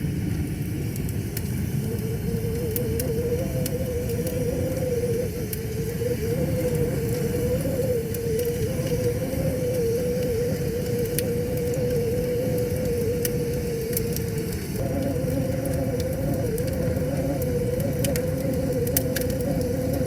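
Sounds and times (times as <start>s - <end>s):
wood fire crackling: 0.0s - 20.0s
wavering tone: 1.9s - 20.0s.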